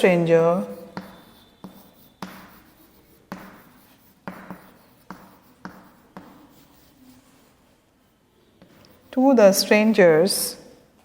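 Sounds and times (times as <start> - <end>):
scratchy writing strokes: 0.3 - 9.8
marker tapping on board: 0.9 - 6.7.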